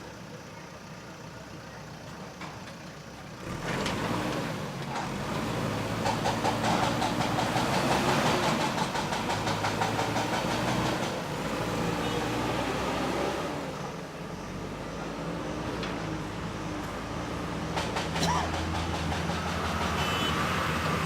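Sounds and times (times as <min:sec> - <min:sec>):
diesel engine running: 0:00.0 - 0:21.0
fast even clatter: 0:06.0 - 0:11.2, 0:17.7 - 0:20.0.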